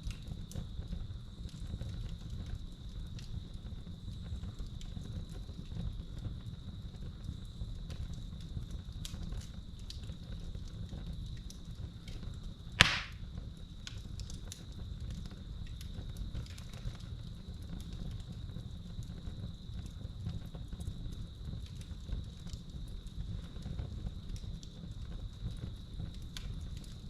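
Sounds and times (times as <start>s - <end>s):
wood fire crackling: 0.0s - 27.0s
loud pop of fire: 12.8s - 13.2s.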